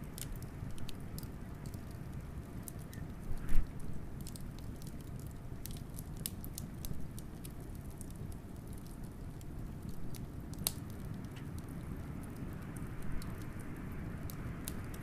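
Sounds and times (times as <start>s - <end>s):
fire crackling and popping: 0.0s - 15.0s
low wind rumble: 8.2s - 15.0s.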